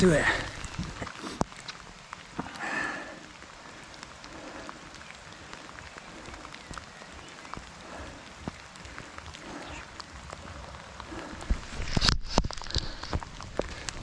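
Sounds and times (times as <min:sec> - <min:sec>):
raindrops ticking close: 0:00.0 - 0:14.0
steady rain falling: 0:00.0 - 0:14.0.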